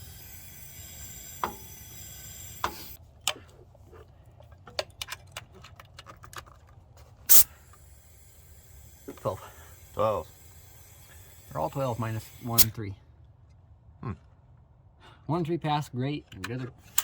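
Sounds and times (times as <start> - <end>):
compressed air hissing: 0.0 - 3.0, 7.3 - 12.8.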